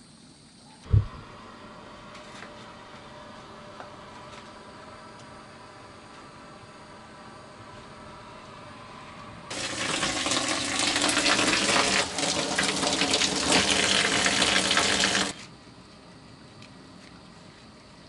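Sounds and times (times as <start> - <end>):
water running from a faucet: 9.5 - 15.4.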